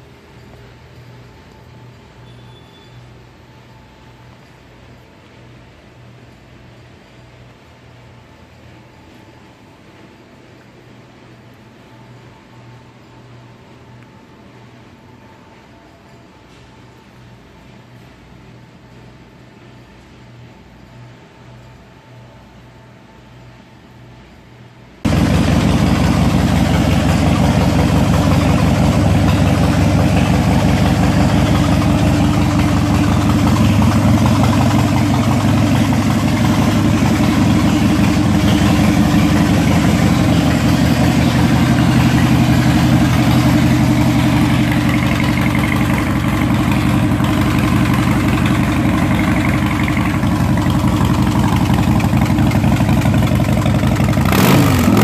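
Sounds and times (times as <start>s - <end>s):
motorcycle engine idling: 25.1s - 55.0s.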